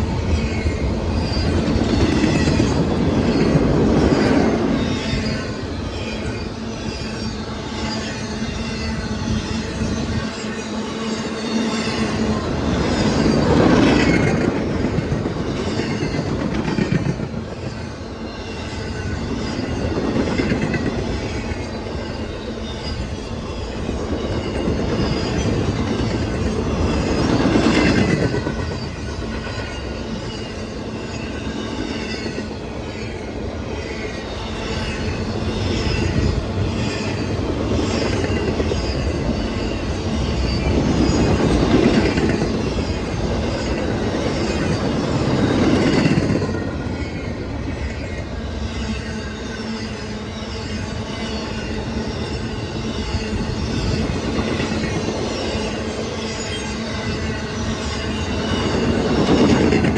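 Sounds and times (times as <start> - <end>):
train wheels clattering over rails: 23.8 - 33.2, 57.1 - 59.9.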